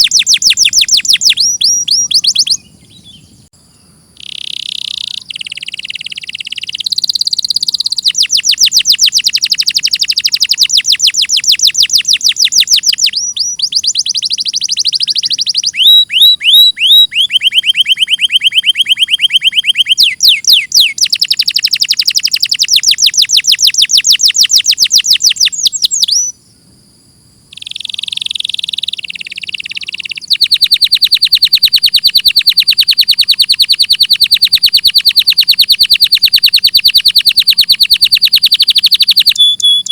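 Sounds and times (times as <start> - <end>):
canary singing trills: 0.0 - 26.4, 27.5 - 39.9.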